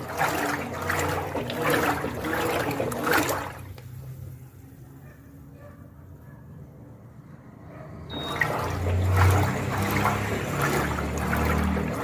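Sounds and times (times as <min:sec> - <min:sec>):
washing machine water inflow: 0:00.0 - 0:04.4, 0:08.1 - 0:12.0.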